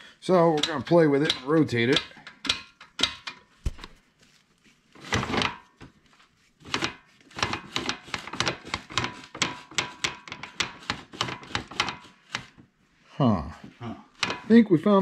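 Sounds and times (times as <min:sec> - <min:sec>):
metal clicking and clunking: 0:00.3 - 0:03.9, 0:14.2 - 0:14.6
irregular metal knocks: 0:14.2 - 0:14.6.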